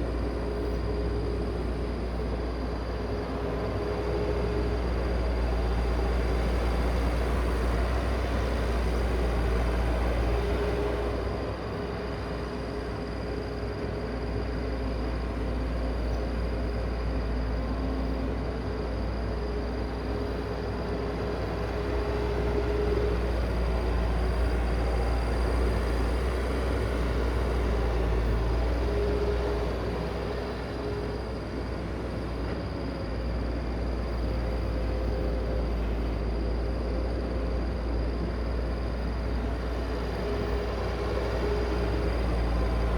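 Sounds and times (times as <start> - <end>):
heavy machinery engine rumble: 21.1 - 42.9.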